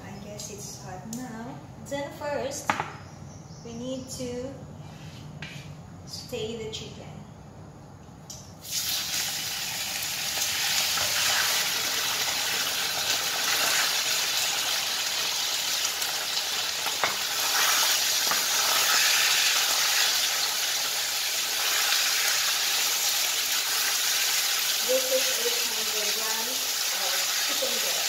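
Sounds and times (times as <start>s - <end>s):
chicken sizzling in hot oil: 8.6s - 28.0s.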